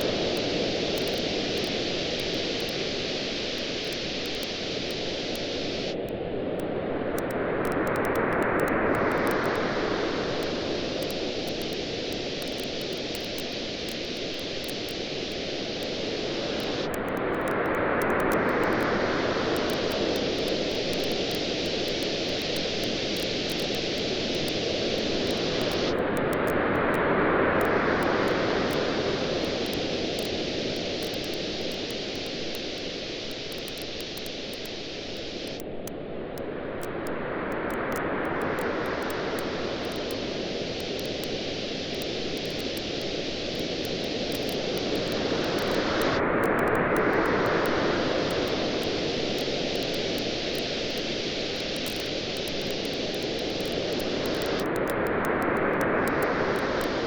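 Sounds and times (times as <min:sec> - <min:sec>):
waves washing onto beach: 0:00.0 - 0:57.0
campfire crackling: 0:28.0 - 0:35.8, 0:37.7 - 0:54.8.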